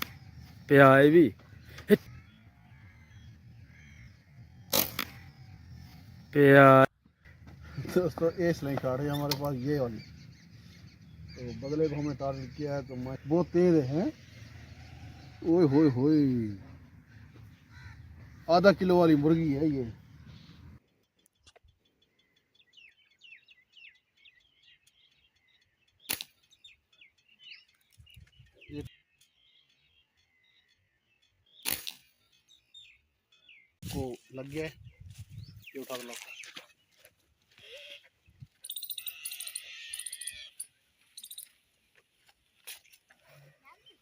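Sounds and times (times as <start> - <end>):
small birds chirping: 0.0 - 44.0
sharp snap: 4.7 - 5.2, 26.1 - 26.4, 31.6 - 32.1.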